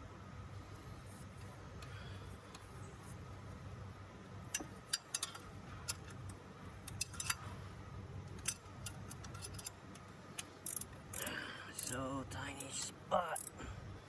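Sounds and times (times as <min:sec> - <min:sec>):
steady low hum: 0:00.0 - 0:14.0
hand tools and metal clinking: 0:04.5 - 0:07.5, 0:08.3 - 0:13.6.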